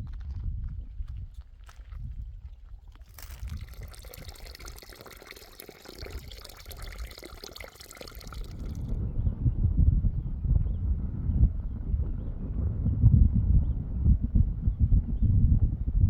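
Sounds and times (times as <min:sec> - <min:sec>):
water pouring: 0:02.9 - 0:09.0.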